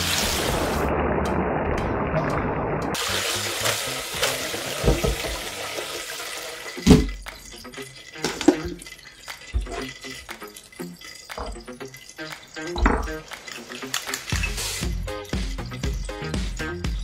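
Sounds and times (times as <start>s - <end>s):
hot oil dripping into pot: 5.9s - 14.3s.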